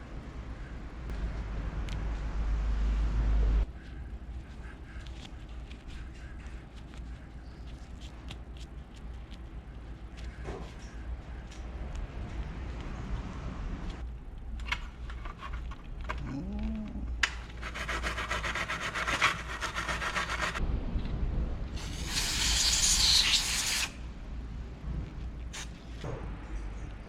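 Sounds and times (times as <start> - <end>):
rapid rubbing strokes: 17.6 - 20.6.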